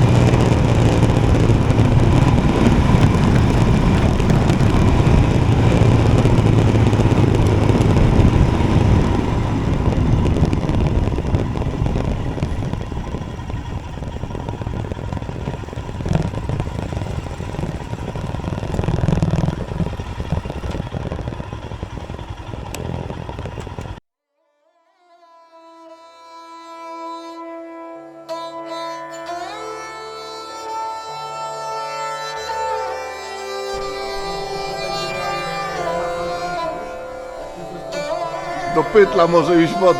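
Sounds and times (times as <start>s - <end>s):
sitar music: 0.0s - 21.4s, 24.9s - 39.9s
motorcycle engine: 0.0s - 24.0s, 33.7s - 39.9s
road noise: 0.0s - 24.0s, 33.7s - 39.9s.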